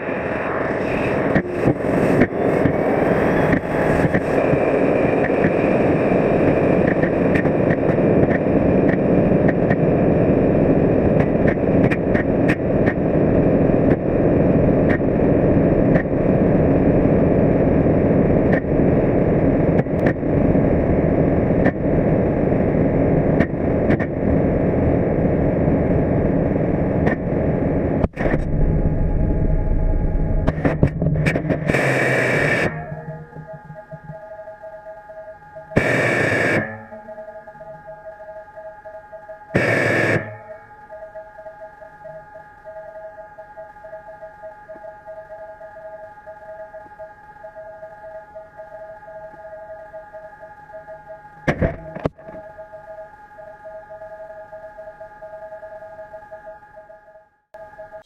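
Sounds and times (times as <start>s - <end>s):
rocket engine firing: 28.0s - 32.8s.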